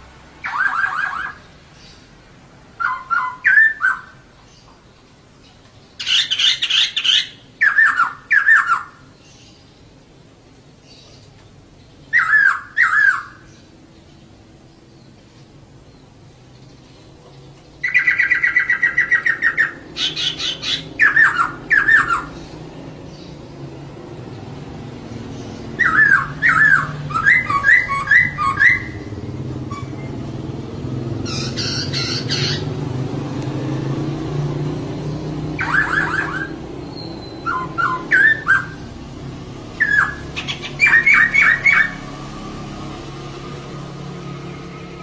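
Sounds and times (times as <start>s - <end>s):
bird squawking calls: 0.4s - 1.5s, 2.8s - 4.8s, 6.0s - 9.1s, 12.1s - 13.5s, 17.8s - 22.5s, 25.4s - 30.1s, 31.2s - 32.8s, 35.6s - 38.9s, 39.8s - 42.0s.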